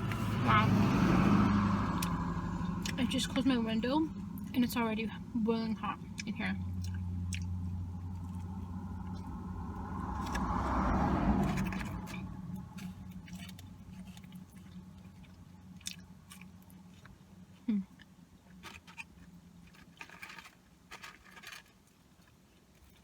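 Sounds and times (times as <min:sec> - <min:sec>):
vehicle passing: 0:00.0 - 0:17.0
chewing and crunching food: 0:00.0 - 0:23.0.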